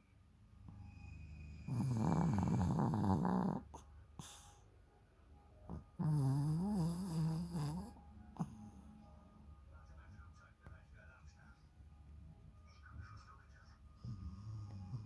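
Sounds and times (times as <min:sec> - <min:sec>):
dog snoring: 0:00.7 - 0:04.6, 0:05.7 - 0:08.8, 0:14.0 - 0:15.0.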